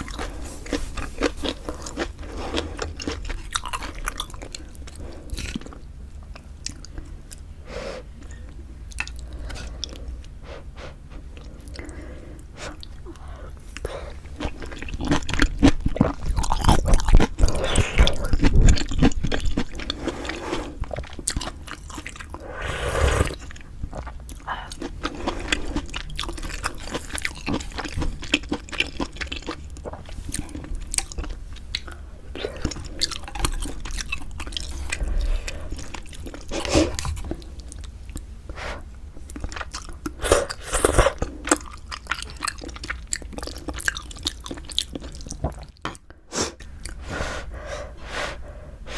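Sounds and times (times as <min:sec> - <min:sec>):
wet chewing and smacking: 0:00.0 - 0:07.5, 0:08.2 - 0:10.4, 0:12.7 - 0:22.4, 0:23.2 - 0:38.4, 0:39.2 - 0:47.0
slurping: 0:22.0 - 0:24.1.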